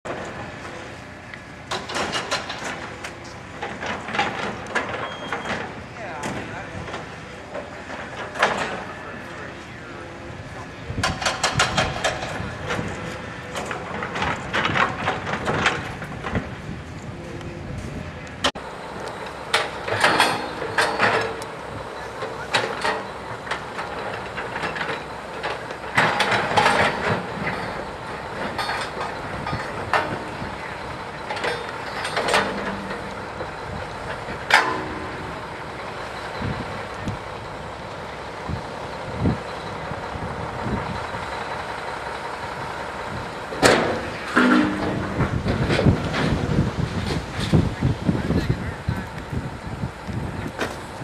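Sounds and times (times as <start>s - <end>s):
heavy machinery running: 0.1s - 51.0s
sharp metallic clanks: 19.5s - 36.7s, 43.6s - 46.4s.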